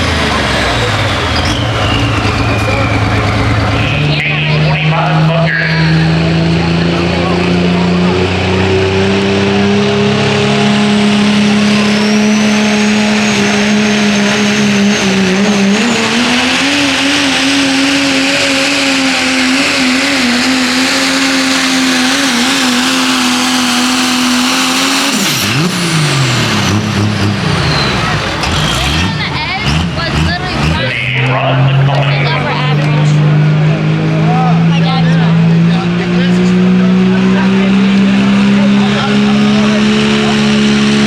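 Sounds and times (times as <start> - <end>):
diesel truck engine at high revs: 0.0 - 41.0.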